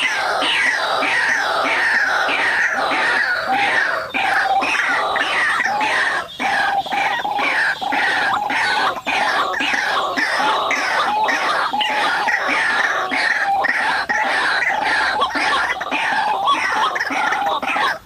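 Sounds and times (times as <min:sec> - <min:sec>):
waterhen calling harshly: 0:00.0 - 0:18.0.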